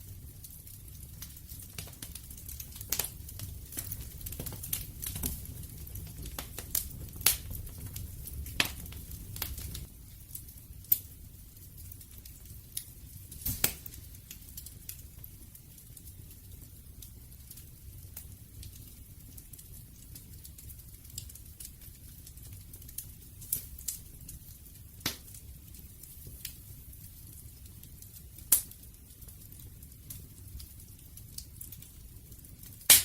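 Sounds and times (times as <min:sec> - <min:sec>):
low rumble of flames: 0:00.0 - 0:33.0
wood fire crackling and popping: 0:00.0 - 0:33.0.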